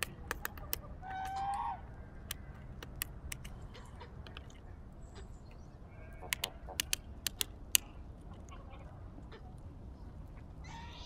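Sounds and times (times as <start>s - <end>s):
farm bird call: 0.0s - 2.8s, 5.0s - 7.2s, 10.4s - 11.0s
woodpecker pecking bark: 0.0s - 4.6s, 6.2s - 8.6s.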